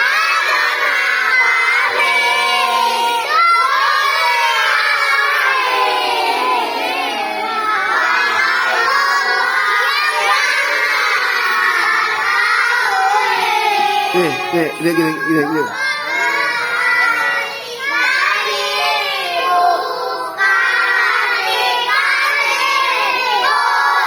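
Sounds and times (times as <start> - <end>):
children singing: 14.2 - 15.9.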